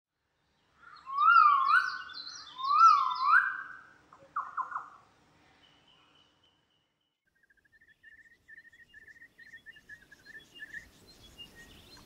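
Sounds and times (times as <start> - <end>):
bird whistled calls: 1.0 - 3.9.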